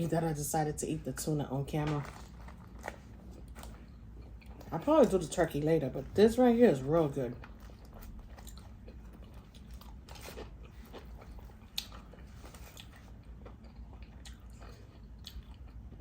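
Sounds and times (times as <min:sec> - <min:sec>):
chewing with mouth clicks: 0:02.0 - 0:05.2, 0:07.3 - 0:16.0.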